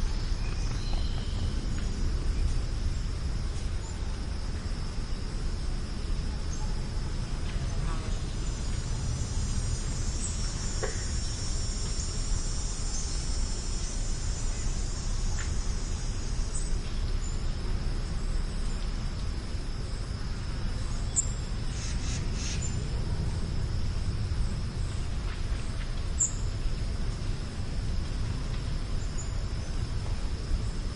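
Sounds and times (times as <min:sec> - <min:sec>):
high-pitched insect chorus: 0:00.0 - 0:30.9
steady low rumble: 0:00.0 - 0:30.9.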